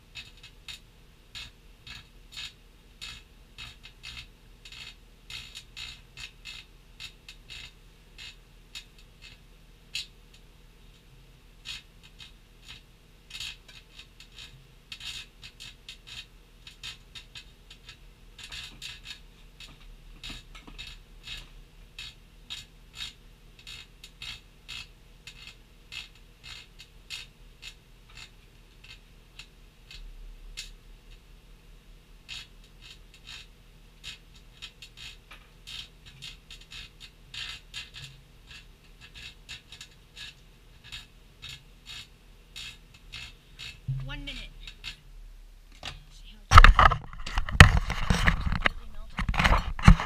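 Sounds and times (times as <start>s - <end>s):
sharp crackling clicks: 45.7s - 50.0s.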